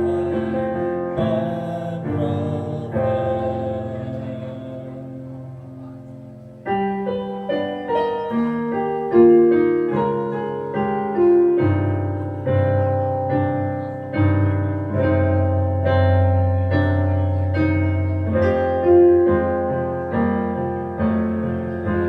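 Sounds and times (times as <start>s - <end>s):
piano playing: 0.0s - 22.0s.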